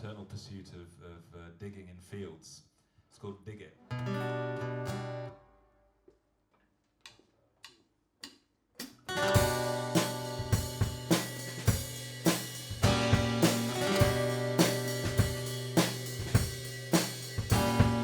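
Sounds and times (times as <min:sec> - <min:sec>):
drum kit with cymbals: 0:08.8 - 0:18.0
live band playing: 0:09.4 - 0:18.0
strummed guitar chord: 0:12.8 - 0:18.0.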